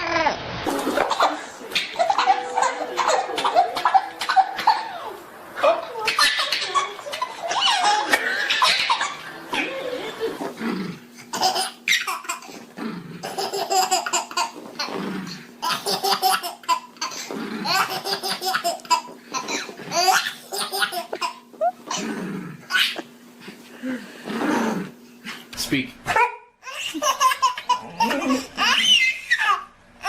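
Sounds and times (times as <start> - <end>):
baby laughing: 0.7 - 5.2, 5.8 - 10.6, 11.2 - 12.6, 13.2 - 14.9, 15.6 - 22.0, 22.7 - 23.1, 26.2 - 29.7.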